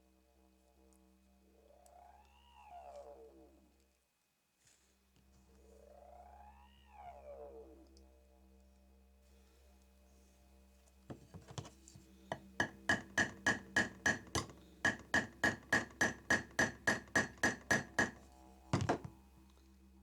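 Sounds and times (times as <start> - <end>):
small hammer tapping on metal: 11.1 - 11.7, 12.3 - 18.2, 18.8 - 19.2.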